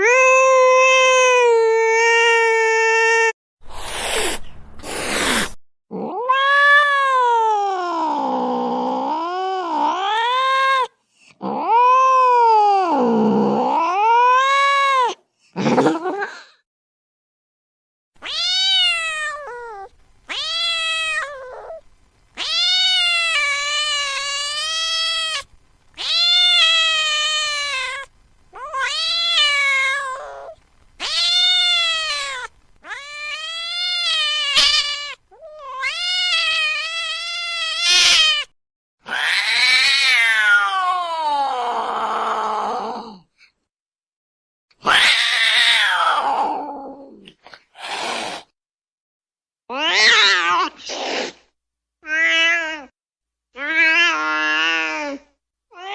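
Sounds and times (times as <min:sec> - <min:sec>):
cat wailing meows: 0:00.0 - 0:03.3, 0:05.9 - 0:15.2, 0:18.2 - 0:21.8, 0:22.4 - 0:38.5, 0:39.1 - 0:42.4, 0:44.8 - 0:47.1, 0:49.7 - 0:50.9, 0:52.0 - 0:53.0, 0:53.6 - 0:55.9.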